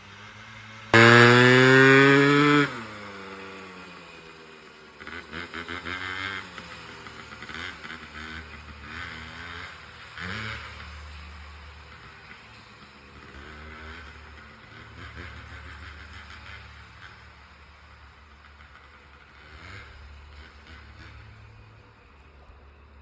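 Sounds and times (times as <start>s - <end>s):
dirt bike engine revving: 1.0s - 9.7s.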